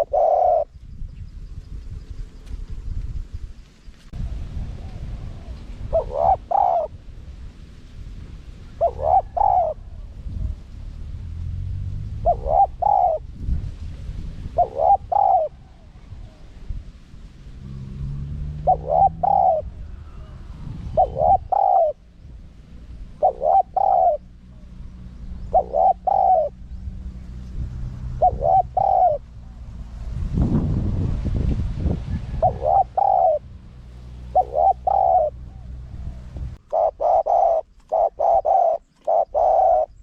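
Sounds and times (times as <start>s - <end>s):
dove cooing: 0.0s - 0.8s, 4.2s - 7.0s, 8.6s - 10.6s, 12.2s - 13.4s, 14.5s - 16.7s, 18.4s - 27.4s, 28.0s - 30.2s, 32.2s - 40.0s.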